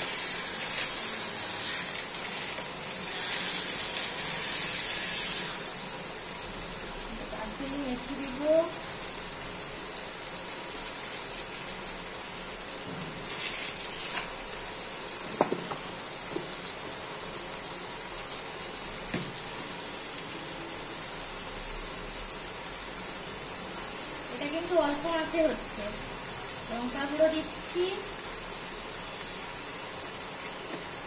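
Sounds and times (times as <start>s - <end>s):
chicken sizzling in hot oil: 0.0s - 31.0s
wooden spatula knocks: 15.4s - 15.8s.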